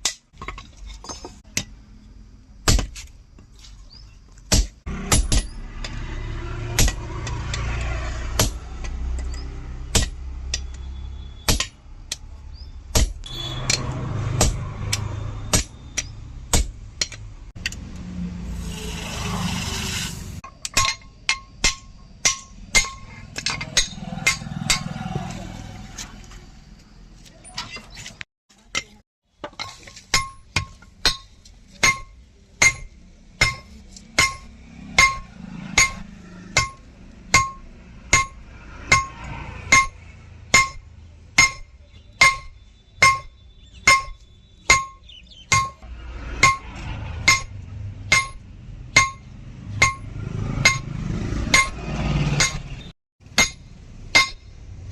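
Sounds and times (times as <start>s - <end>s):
hammer blows on anvil: 31.8s - 45.8s, 46.4s - 48.4s, 49.0s - 54.5s.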